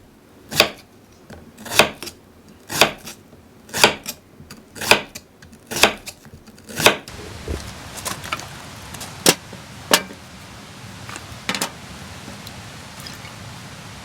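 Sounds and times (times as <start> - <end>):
steady hiss: 7.1 - 14.0.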